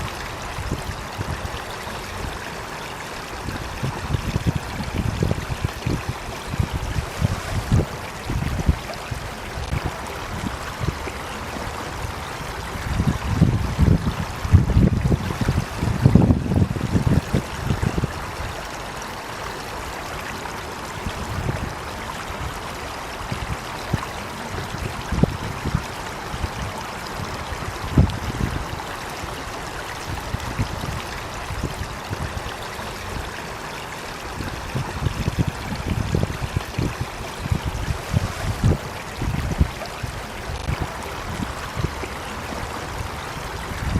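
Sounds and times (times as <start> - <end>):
running water trickling: 0.0 - 43.9.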